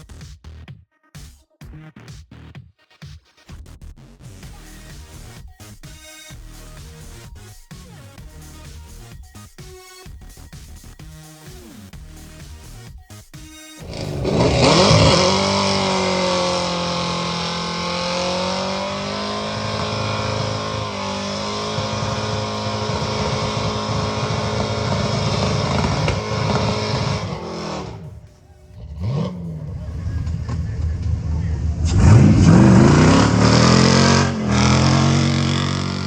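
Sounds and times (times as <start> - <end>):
vehicle engine revving: 13.8 - 36.0.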